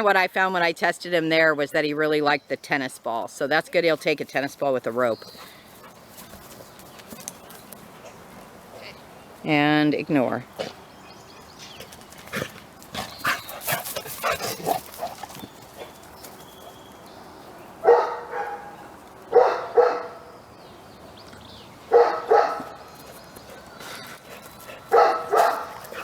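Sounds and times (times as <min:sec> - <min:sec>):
dog barking: 0:17.8 - 0:20.2, 0:21.9 - 0:22.8, 0:24.9 - 0:26.0.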